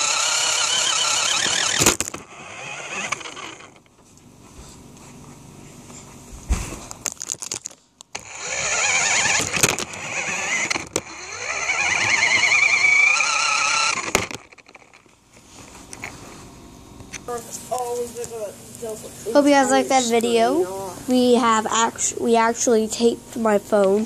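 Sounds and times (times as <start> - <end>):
rc truck motor whining: 0.0 - 3.9, 8.1 - 15.1.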